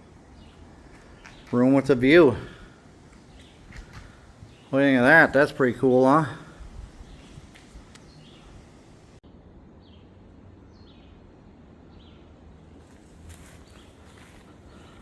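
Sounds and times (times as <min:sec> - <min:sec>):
low outdoor rumble: 0:00.0 - 0:15.0
bird chirping: 0:00.3 - 0:09.2, 0:13.3 - 0:15.0
light crackling: 0:00.8 - 0:09.2.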